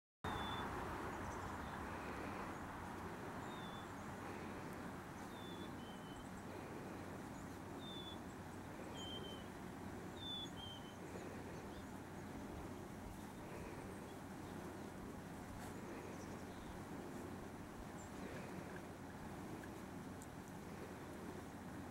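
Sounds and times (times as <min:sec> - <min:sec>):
small bird chirping: 0:00.3 - 0:01.8, 0:03.4 - 0:04.1, 0:05.2 - 0:06.4, 0:07.3 - 0:09.5, 0:10.1 - 0:15.0
steady background noise: 0:00.3 - 0:21.9.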